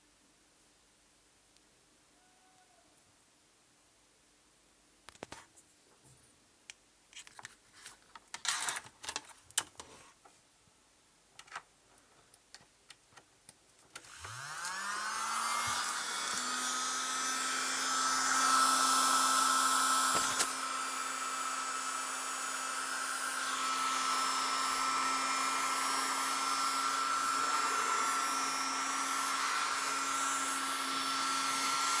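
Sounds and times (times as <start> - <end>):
small vacuum cleaner running: 14.0 - 32.0.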